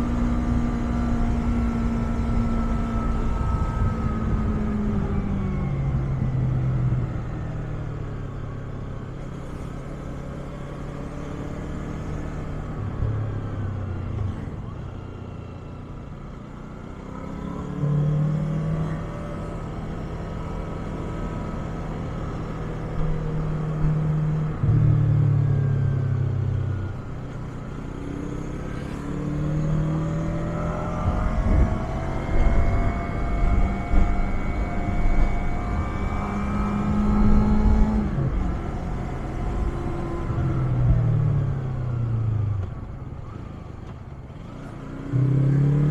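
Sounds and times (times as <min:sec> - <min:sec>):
wind rumble on microphone: 0:00.0 - 0:07.2, 0:29.6 - 0:43.4
motorcycle engine accelerating: 0:00.0 - 0:45.9.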